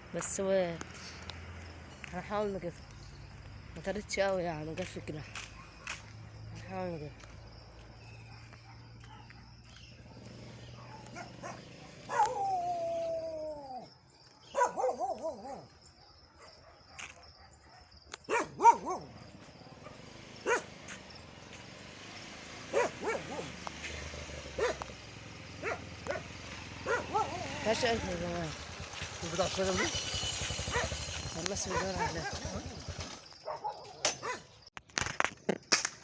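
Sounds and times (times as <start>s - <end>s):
dog barking: 8.2s - 9.7s, 10.8s - 12.5s, 14.4s - 20.8s, 22.7s - 23.6s, 24.6s - 24.9s, 25.6s - 27.6s, 30.7s - 31.0s, 31.6s - 32.5s, 33.4s - 34.5s
dog yelping and whining: 10.8s - 13.8s.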